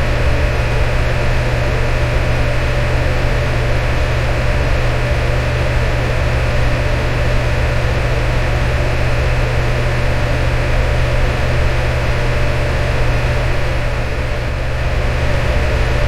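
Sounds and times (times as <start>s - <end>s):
electric fan running: 0.0s - 16.0s.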